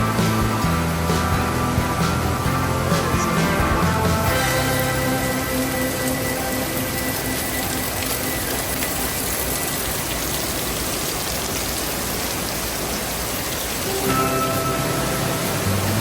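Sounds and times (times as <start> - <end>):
background music: 0.0 - 9.7, 13.9 - 16.0
waterfall rushing: 0.0 - 16.0.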